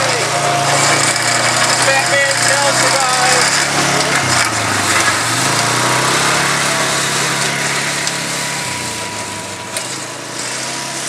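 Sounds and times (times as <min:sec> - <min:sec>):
lawn mower engine running: 0:00.0 - 0:11.0.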